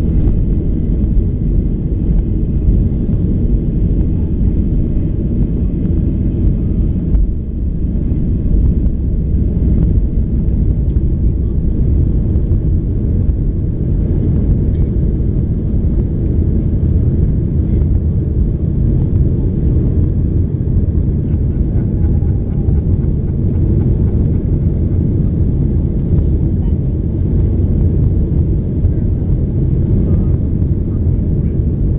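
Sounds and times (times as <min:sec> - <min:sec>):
jet engines rumbling in cabin: 0:00.0 - 0:31.9.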